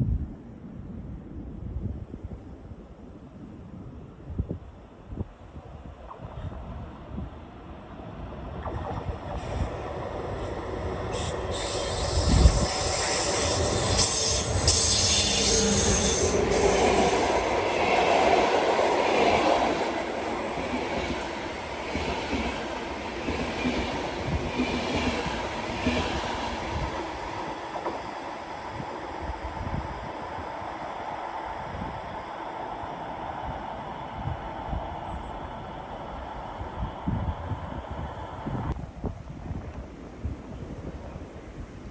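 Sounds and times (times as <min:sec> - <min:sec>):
train passing: 0:06.3 - 0:38.8.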